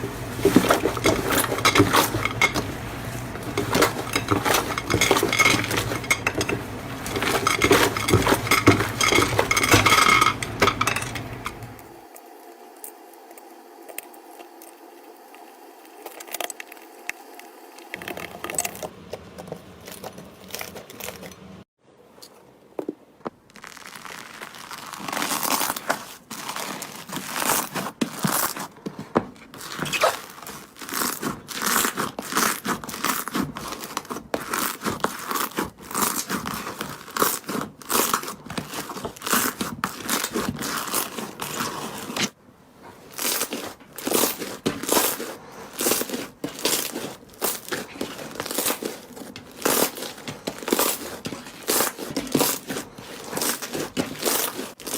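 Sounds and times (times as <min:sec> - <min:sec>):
slime crackling and crunching: 0:23.4 - 0:28.8, 0:29.4 - 0:42.4, 0:43.0 - 0:54.9.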